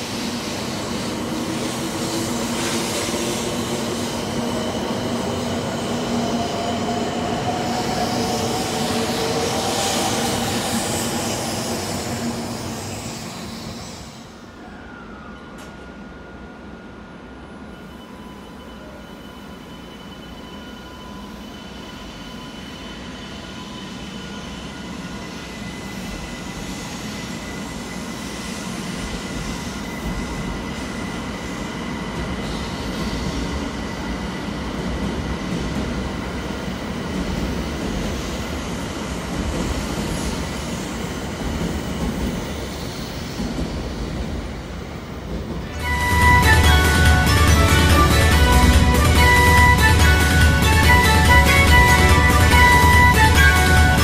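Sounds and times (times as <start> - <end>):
train rushing rail noise: 0.0 - 54.0
loud music: 45.8 - 54.0.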